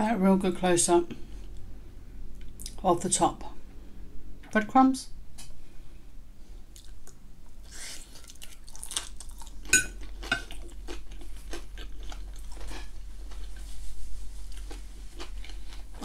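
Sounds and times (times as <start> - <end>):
chewing with wet mouth clicks: 6.7 - 7.2, 7.9 - 13.6.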